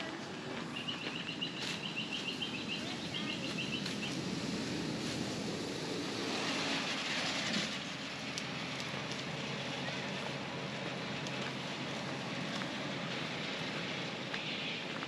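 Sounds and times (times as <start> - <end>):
low outdoor rumble: 0.0 - 15.0
bird chirping: 0.7 - 4.2
rushing hiss: 2.7 - 14.9.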